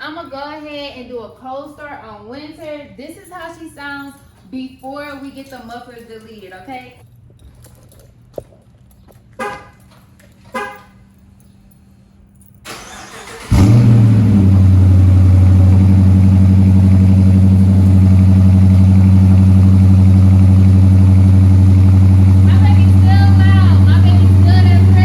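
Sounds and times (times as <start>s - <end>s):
car engine cold idling: 12.7s - 25.0s.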